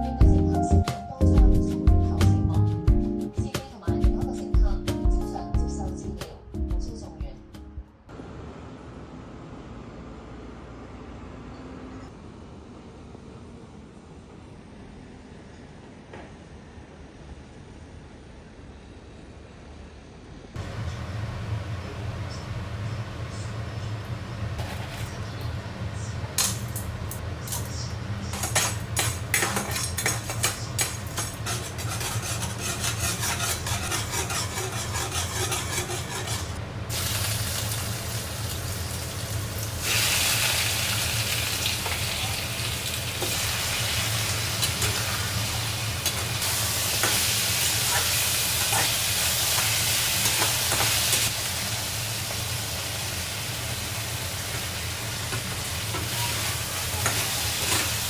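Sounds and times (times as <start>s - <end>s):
spatula stirring and tapping: 28.4s - 36.6s
food sizzling in a pan: 31.1s - 58.0s.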